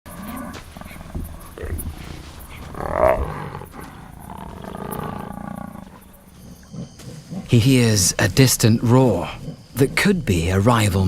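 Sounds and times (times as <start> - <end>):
jaguar roaring: 0.1 - 8.2.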